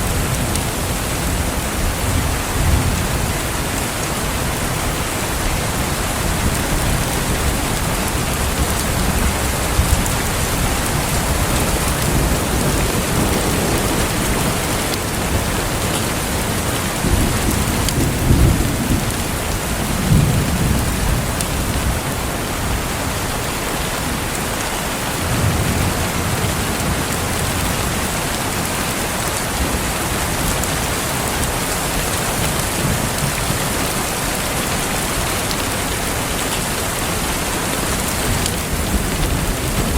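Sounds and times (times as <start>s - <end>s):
steady rain: 0.0s - 39.9s
rolling thunder: 5.3s - 22.8s.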